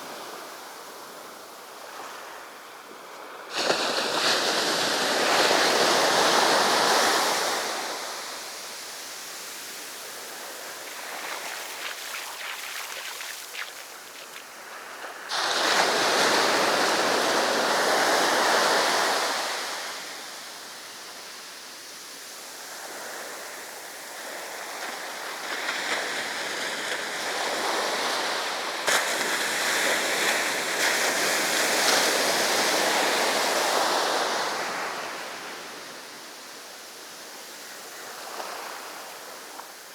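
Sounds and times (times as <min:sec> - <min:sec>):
sea waves breaking on beach: 0:03.4 - 0:20.4.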